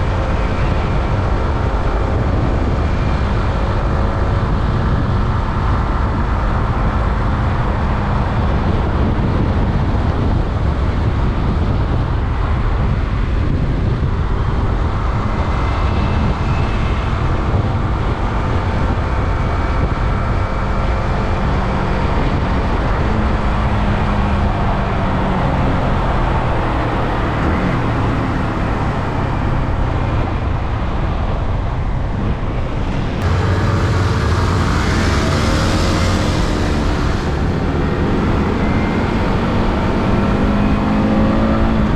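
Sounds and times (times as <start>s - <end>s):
wind and road noise: 0.0s - 41.9s
motorcycle engine revving: 33.2s - 41.9s.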